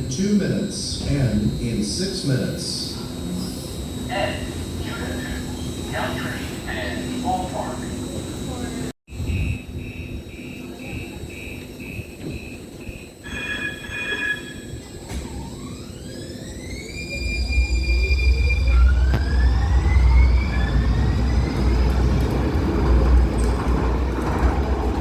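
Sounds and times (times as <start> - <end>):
light-rail train motor whine: 0.0 - 25.0
train rumble: 17.1 - 25.0.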